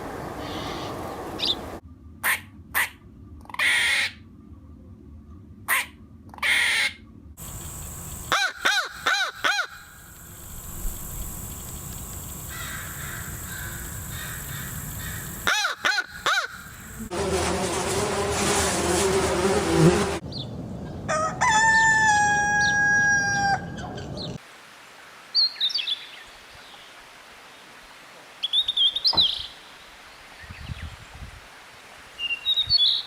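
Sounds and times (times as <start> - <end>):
outdoor background: 0.0 - 33.0
harsh rasping bird calls: 0.4 - 2.9, 5.7 - 17.0
crow cawing: 8.3 - 9.9, 12.5 - 16.8.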